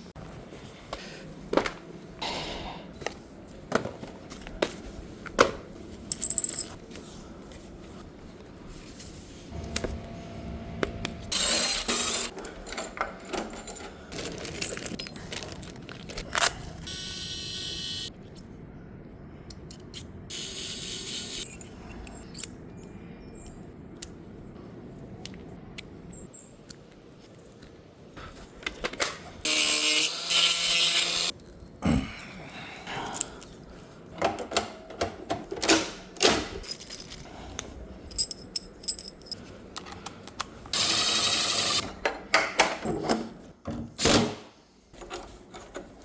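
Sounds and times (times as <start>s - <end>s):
small electric motor whirring: 11.3s - 12.3s, 29.5s - 31.3s.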